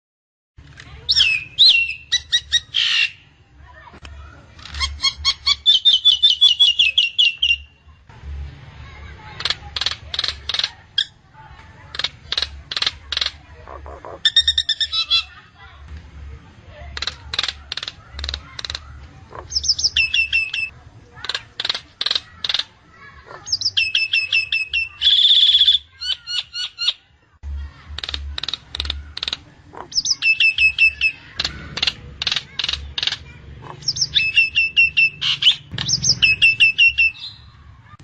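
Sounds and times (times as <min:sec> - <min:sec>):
myna bird calling: 0:01.0 - 0:03.2, 0:11.8 - 0:15.4, 0:17.0 - 0:27.0, 0:27.8 - 0:38.0.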